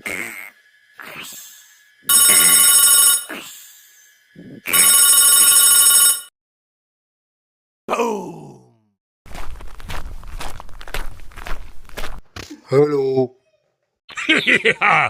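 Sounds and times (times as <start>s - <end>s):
telephone-like rings: 2.1s - 3.3s, 4.7s - 6.3s.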